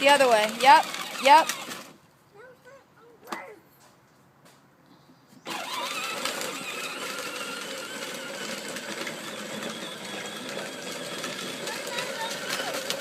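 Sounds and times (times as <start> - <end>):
toy tractor motor whirring: 0.0 - 2.0, 5.4 - 13.0.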